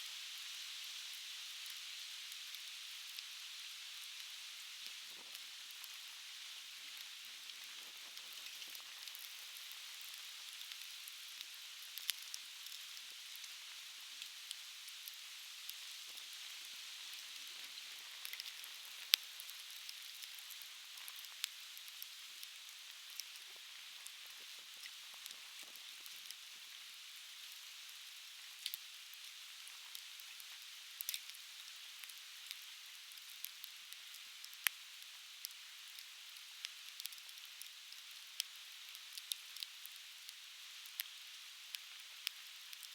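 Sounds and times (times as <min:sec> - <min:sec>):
firewood crackling and popping: 0:07.0 - 0:13.6, 0:17.4 - 0:26.4, 0:28.6 - 0:42.9.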